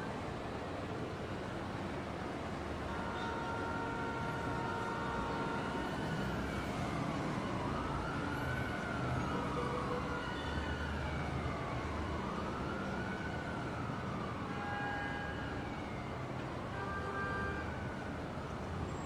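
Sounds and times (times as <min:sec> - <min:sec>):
emergency siren wailing: 0:02.9 - 0:16.8.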